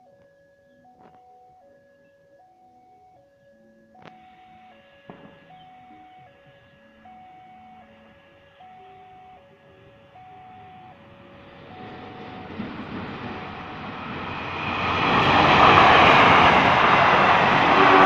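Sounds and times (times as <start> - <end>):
faint chime melody: 0.0 - 15.4
train passing rumble: 9.8 - 18.0.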